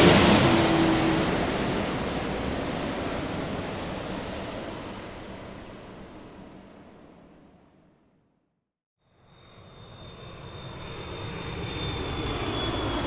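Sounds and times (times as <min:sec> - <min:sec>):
airliner cabin noise: 0:00.0 - 0:05.2.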